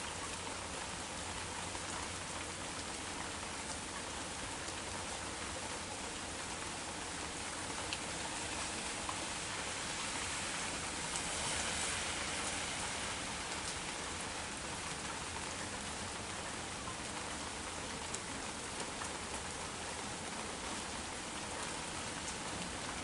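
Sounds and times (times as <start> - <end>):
rain falling: 0.0 - 23.0
raindrop ticks: 7.4 - 9.2, 13.4 - 23.0.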